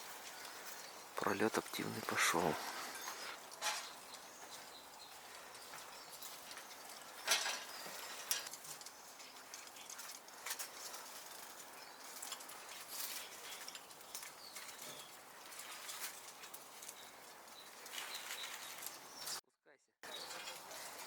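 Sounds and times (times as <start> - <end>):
small birds fluttering in cages: 0.0 - 19.4, 20.0 - 21.0.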